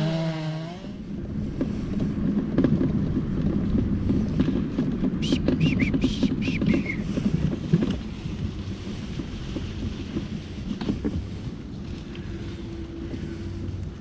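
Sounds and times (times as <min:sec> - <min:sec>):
mobility scooter rolling on path: 0:00.0 - 0:14.0
wind on microphone: 0:00.0 - 0:14.0
bird calling: 0:05.2 - 0:07.2.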